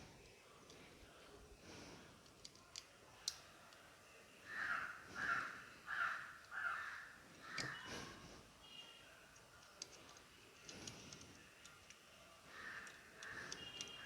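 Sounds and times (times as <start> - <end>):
crow cawing: 4.5 - 7.9, 12.5 - 13.7.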